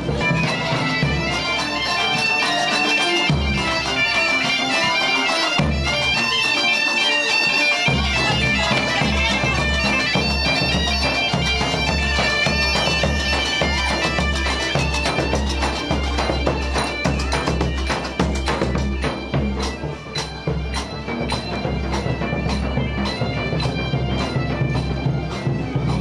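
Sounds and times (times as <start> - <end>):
bagpipes playing a tune: 0.0 - 26.0.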